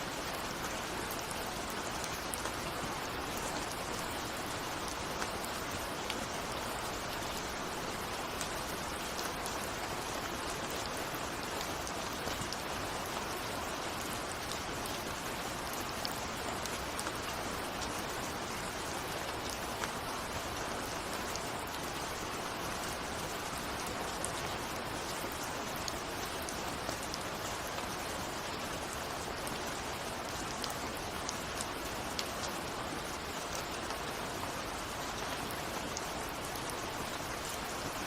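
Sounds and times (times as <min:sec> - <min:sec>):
rain pattering on a window: 0:00.0 - 0:38.0.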